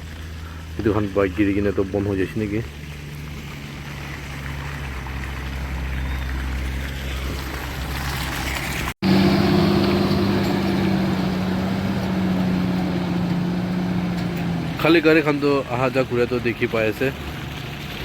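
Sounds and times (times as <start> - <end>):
vehicle engines on road: 0.0 - 18.0
loud engine drone: 9.0 - 16.4.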